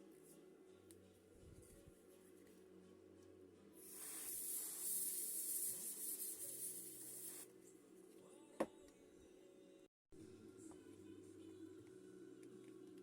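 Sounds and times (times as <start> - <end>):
aerosol spray hissing: 3.8 - 7.5.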